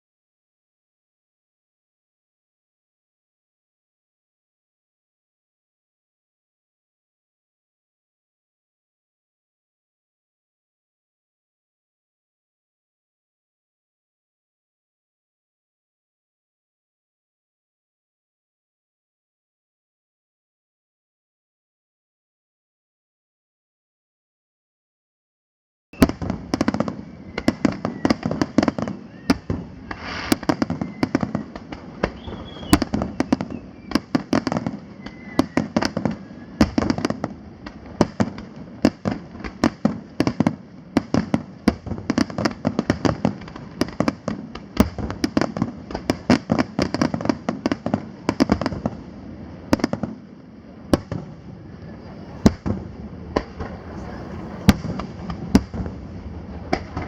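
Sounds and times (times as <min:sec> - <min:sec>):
fireworks bangs and crackling: 0:26.0 - 0:57.0.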